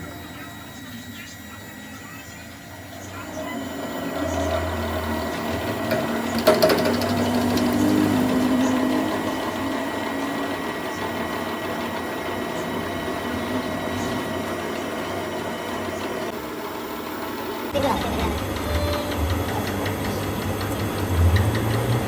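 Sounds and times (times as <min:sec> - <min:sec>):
machine tool cutting steel: 0:03.6 - 0:15.0, 0:17.8 - 0:22.0.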